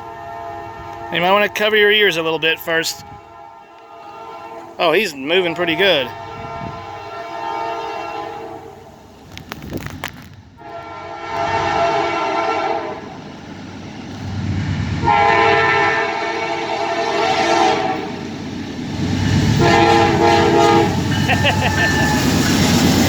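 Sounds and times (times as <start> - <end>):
locomotive air horn: 0.0 - 8.8, 10.6 - 13.1, 15.0 - 18.2, 19.6 - 22.3.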